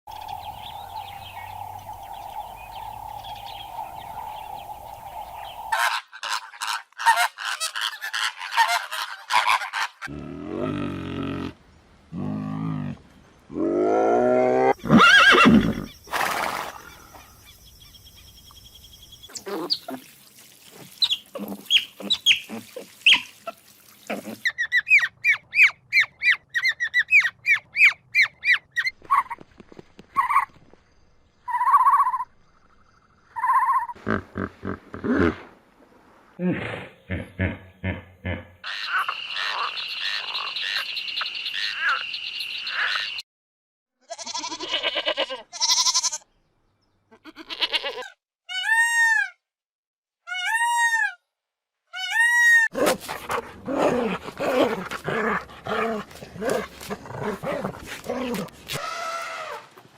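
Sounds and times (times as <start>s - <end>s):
drawn-out pitched animal calls: 20.9s - 29.2s
rapid chattering animal calls: 38.6s - 43.2s.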